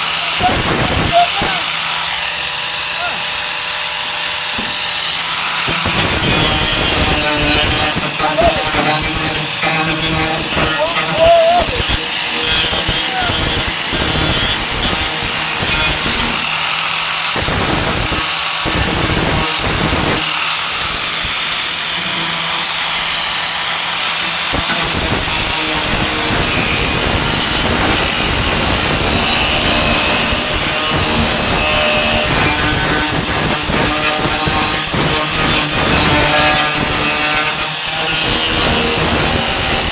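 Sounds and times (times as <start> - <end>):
angle grinder grinding sheet metal: 0.0 - 39.9.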